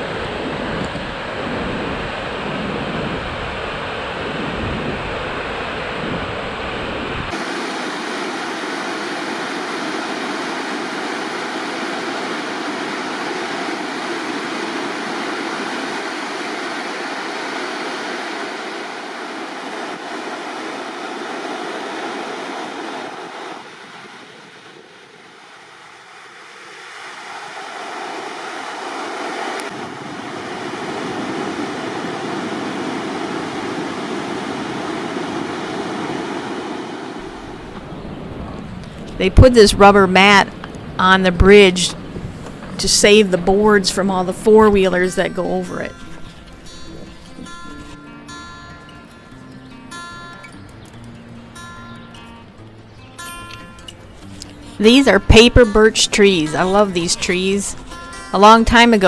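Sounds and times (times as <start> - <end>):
wind buffeting microphone: 0.0 - 8.1, 37.2 - 43.8
waterfall rushing: 7.3 - 48.0.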